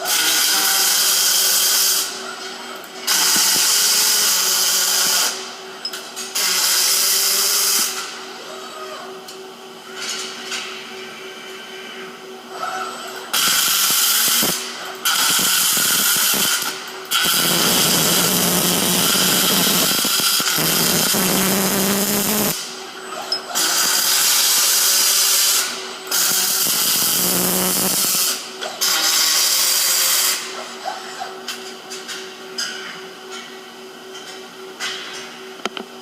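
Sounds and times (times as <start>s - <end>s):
welding arc crackling and hissing: 0.1s - 2.2s, 3.1s - 5.4s, 6.4s - 8.1s, 13.3s - 22.7s, 23.6s - 30.5s.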